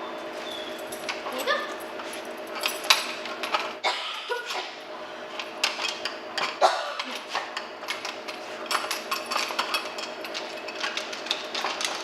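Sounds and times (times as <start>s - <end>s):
plastic toy clicking and clattering: 5.4s - 12.0s.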